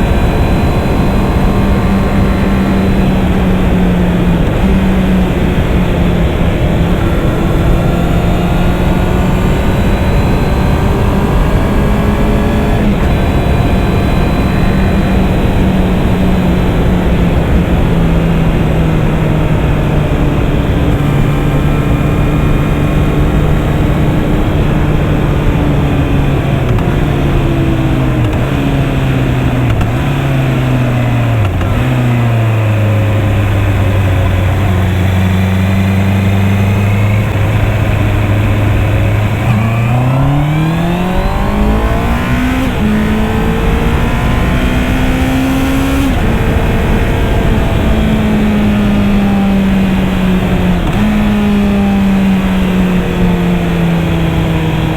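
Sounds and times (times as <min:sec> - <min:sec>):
motorcycle engine revving: 0:00.0 - 0:54.9
wind noise: 0:00.0 - 0:54.9.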